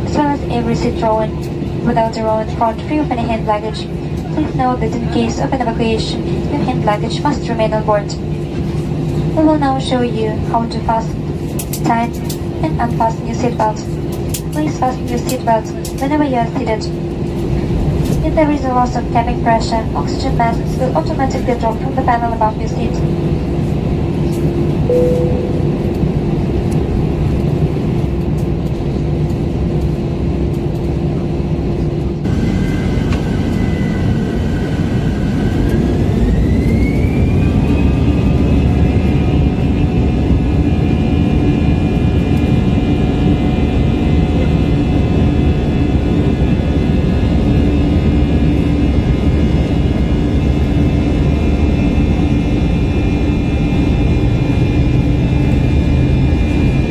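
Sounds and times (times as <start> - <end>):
jet engines humming in cabin: 0.0 - 56.9
jet engine whine rising: 24.9 - 27.0, 32.3 - 56.9.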